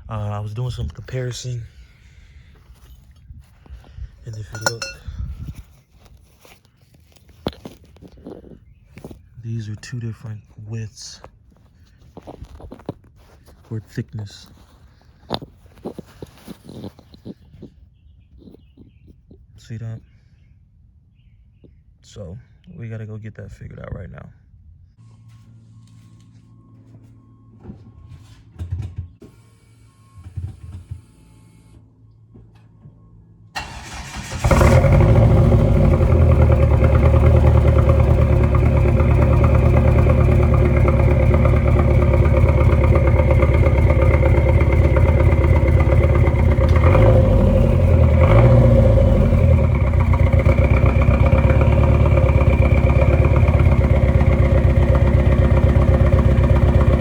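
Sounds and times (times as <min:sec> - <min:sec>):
engine throttle blips: 0:01.6 - 0:09.2, 0:25.0 - 0:57.0
car engine starting and idling: 0:32.5 - 0:57.0.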